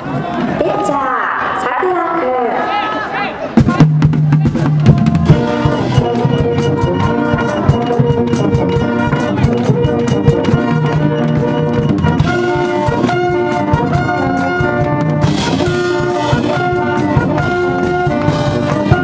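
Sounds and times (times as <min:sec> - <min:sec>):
steady drum beats: 0:03.5 - 0:19.0
trombones holding notes: 0:04.5 - 0:19.0
trumpets holding notes: 0:04.6 - 0:19.0.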